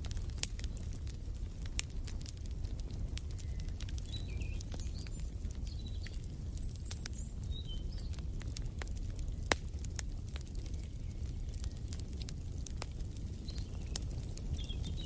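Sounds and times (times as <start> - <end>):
fireplace fire crackling: 0.0 - 15.0
small birds chirping: 3.2 - 8.7, 10.5 - 12.4, 13.0 - 15.0.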